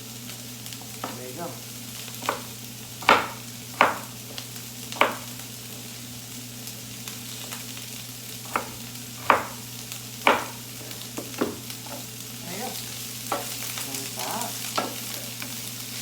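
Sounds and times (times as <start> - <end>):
vegetables sizzling in oil: 0.0 - 16.0
utensil knocking against pan: 2.2 - 4.1, 5.0 - 5.3, 8.5 - 9.6, 10.3 - 10.6.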